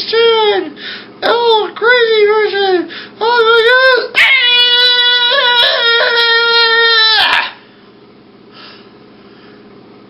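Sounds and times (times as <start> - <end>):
person crying wail: 4.2 - 7.6.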